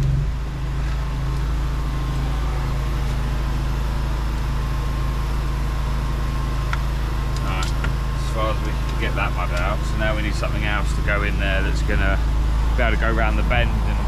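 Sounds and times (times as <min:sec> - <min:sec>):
drain jetter engine humming: 0:00.0 - 0:14.0.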